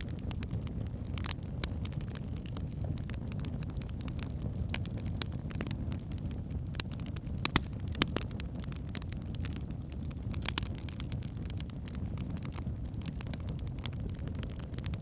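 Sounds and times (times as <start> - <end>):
logs burning and crackling: 0.0 - 15.0.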